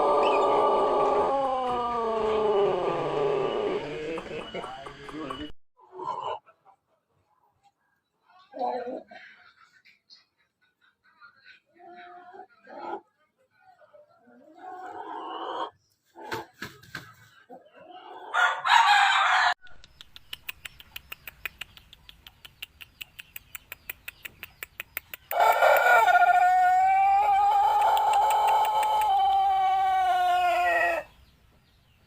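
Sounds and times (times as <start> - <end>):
rooster crowing: 0.0 - 4.5, 18.3 - 19.6, 25.3 - 31.1.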